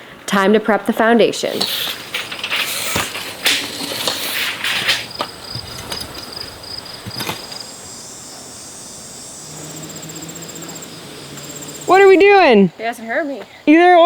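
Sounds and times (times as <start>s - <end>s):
insects chirping: 1.4s - 14.0s
rustles and knocks: 1.5s - 7.7s.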